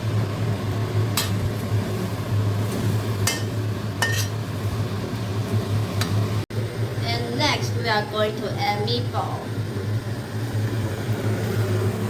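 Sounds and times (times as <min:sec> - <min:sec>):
steady low hum: 0:00.0 - 0:12.0
utensil scraping a pan: 0:02.0 - 0:04.4.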